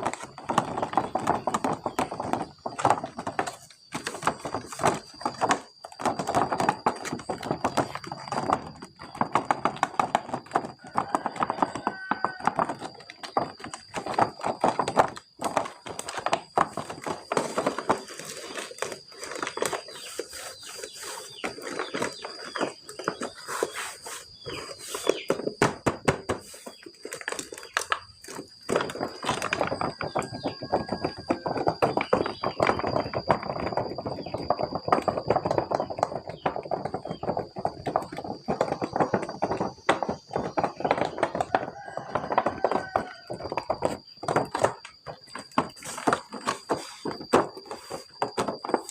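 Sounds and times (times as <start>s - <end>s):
hard objects clicking and clattering: 0.0s - 48.9s
plastic and cardboard rustling: 0.0s - 48.9s.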